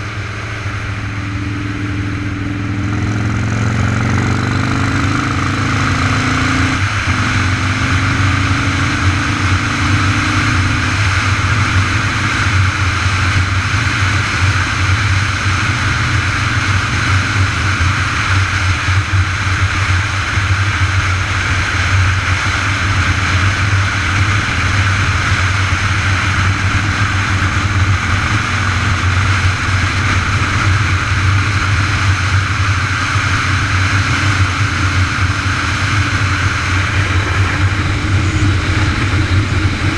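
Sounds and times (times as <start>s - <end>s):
road riding rumble: 0.0s - 39.9s
wind rushing hiss: 36.2s - 39.9s.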